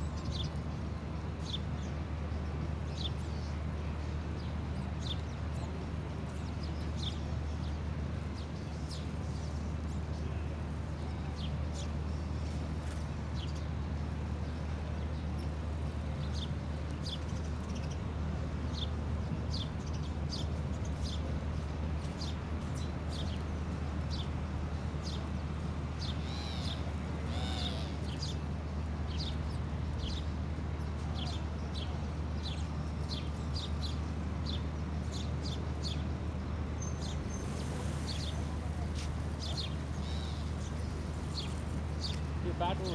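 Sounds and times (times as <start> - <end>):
bird chirping: 36.8 - 42.8.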